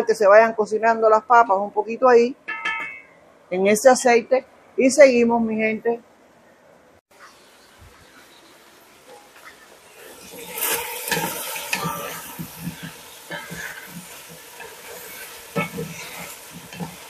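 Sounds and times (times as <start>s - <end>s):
vegetables sizzling in oil: 7.2s - 17.0s
spatulas scraping a metal pot: 9.1s - 17.0s.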